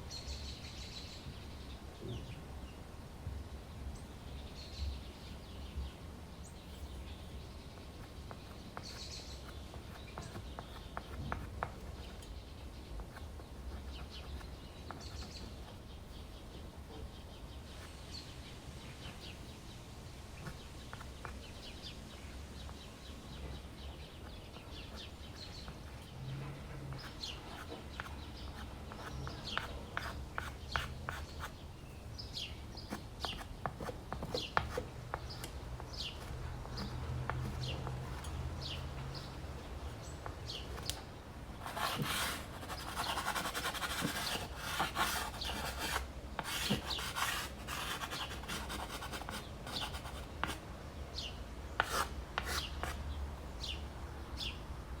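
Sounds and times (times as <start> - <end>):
small birds chirping: 3.5 - 54.7
pastel scratching on canvas: 41.6 - 50.6.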